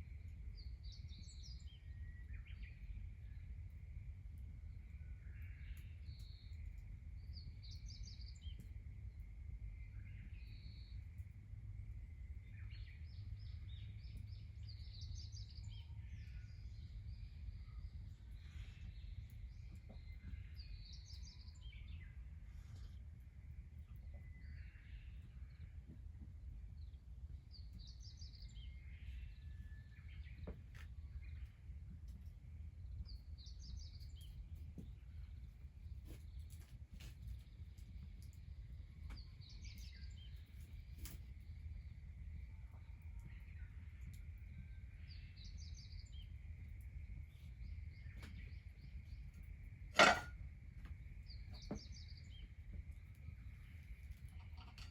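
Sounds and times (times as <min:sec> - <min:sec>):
low rumble of background noise: 0:00.0 - 0:54.9.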